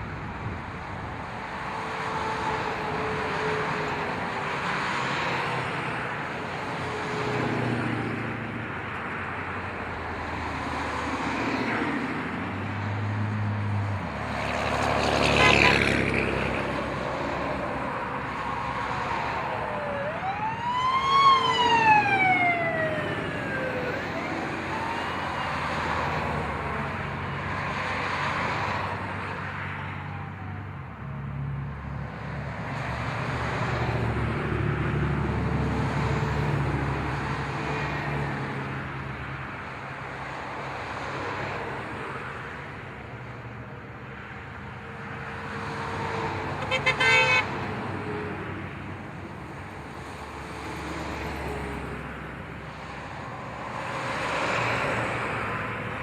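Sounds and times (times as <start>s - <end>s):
truck engines rumbling: 0.0s - 56.0s
vehicle siren wailing: 17.2s - 27.2s.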